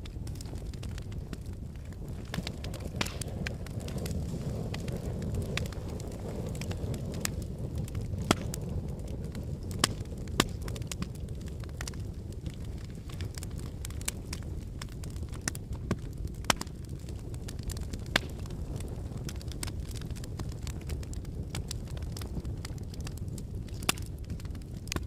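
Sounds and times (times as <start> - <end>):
burning logs crackling and popping: 0.0 - 25.0
low roar of flames: 0.0 - 25.0.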